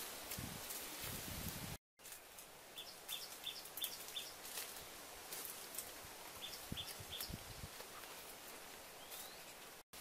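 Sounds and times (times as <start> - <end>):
footsteps in dry leaves: 0.0 - 10.0
bird high chirps: 2.8 - 4.4.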